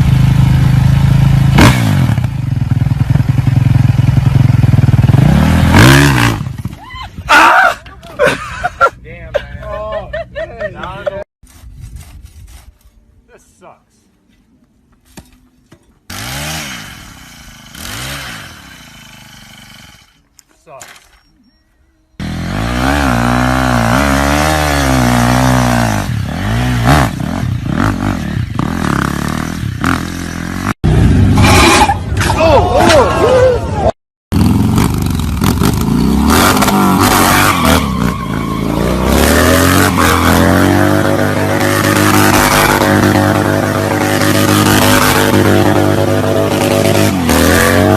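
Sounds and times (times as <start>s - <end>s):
small motorcycle engine revving: 0.0s - 6.8s, 16.1s - 20.2s, 22.2s - 32.0s, 34.3s - 47.9s.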